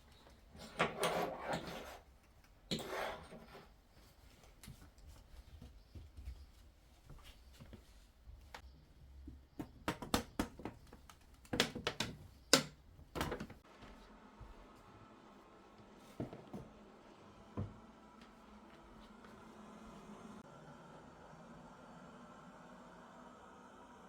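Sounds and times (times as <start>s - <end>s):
household handling clicks and knocks: 9.3s - 13.6s.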